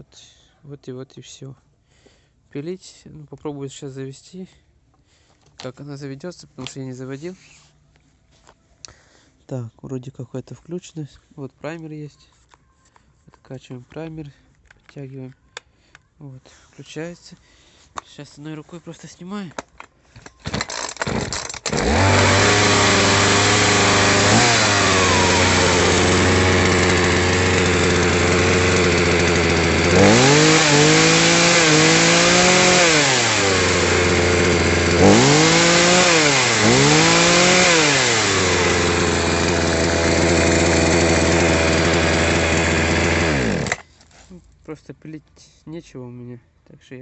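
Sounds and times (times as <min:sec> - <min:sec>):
chainsaw idling and revving: 0:20.5 - 0:43.8.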